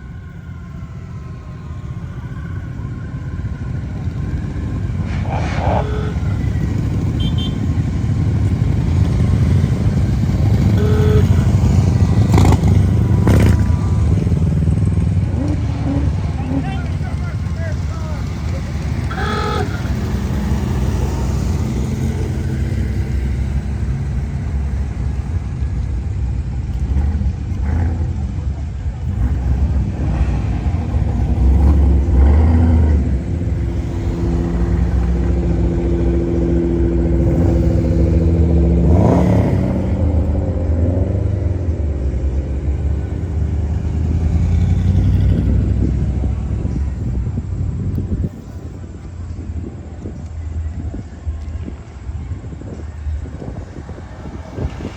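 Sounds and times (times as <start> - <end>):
car engine rumbling: 0.0 - 54.9.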